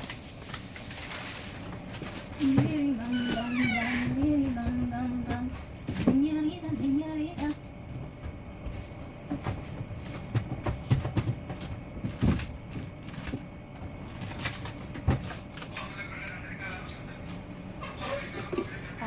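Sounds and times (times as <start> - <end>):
household objects knocking and clattering: 9.2 - 13.4.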